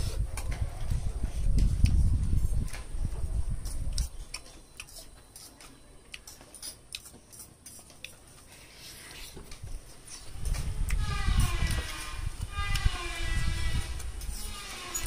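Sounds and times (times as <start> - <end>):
mouth clicks and smacks: 1.4 - 2.4, 3.6 - 8.2
chewing food: 3.6 - 11.0.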